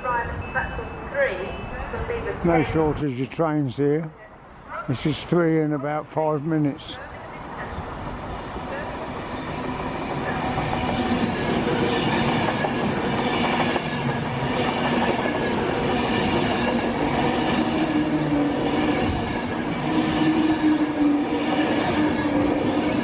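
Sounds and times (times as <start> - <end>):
train wheels rumbling on track: 7.2 - 23.0
train machine whine: 8.3 - 23.0.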